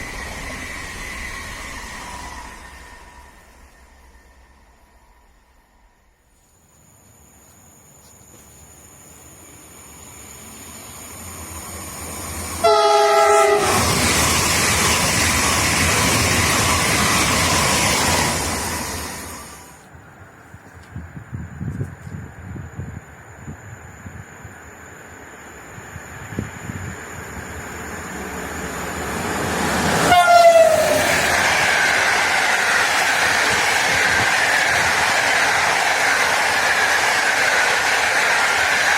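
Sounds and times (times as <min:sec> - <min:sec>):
train rushing past: 0:00.0 - 0:06.4, 0:09.2 - 0:19.9, 0:23.9 - 0:38.9
train horn: 0:12.6 - 0:14.0, 0:30.0 - 0:31.2.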